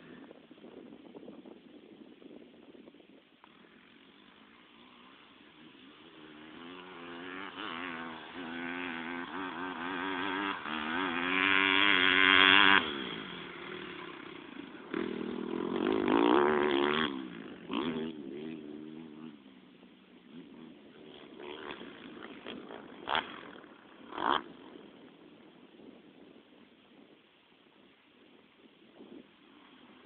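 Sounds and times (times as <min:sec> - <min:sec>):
motorbike passing close: 0:03.4 - 0:25.3
motocross bike engines revving: 0:03.5 - 0:25.3.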